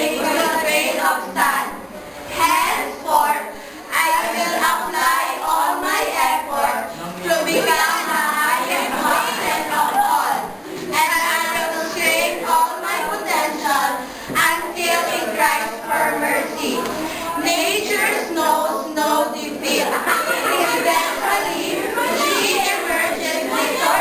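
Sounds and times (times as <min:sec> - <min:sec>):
chorus of young voices singing: 0:00.0 - 0:24.0.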